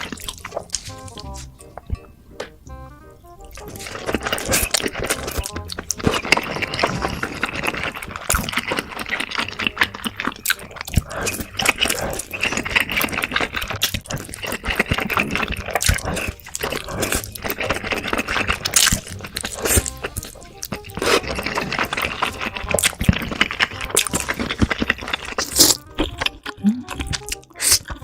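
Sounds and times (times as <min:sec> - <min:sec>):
chewing smacks: 0:00.0 - 0:02.6, 0:03.4 - 0:28.0
person slurping noodles: 0:03.4 - 0:28.0.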